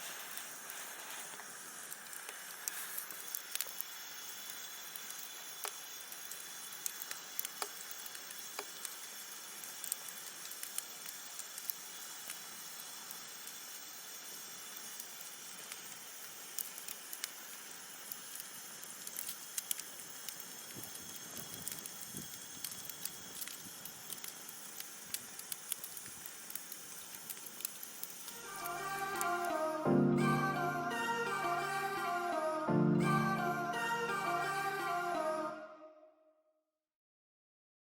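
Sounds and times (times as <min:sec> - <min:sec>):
campfire crackling and popping: 0:00.1 - 0:29.6.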